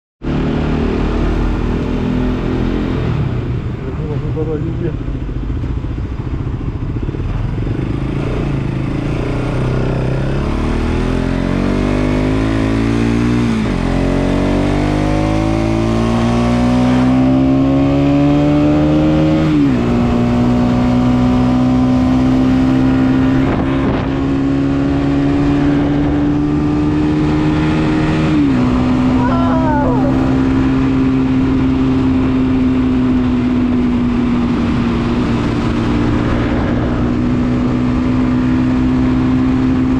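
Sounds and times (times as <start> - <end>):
motorcycle engine accelerating: 0.2 - 39.9
wind noise: 22.0 - 39.9.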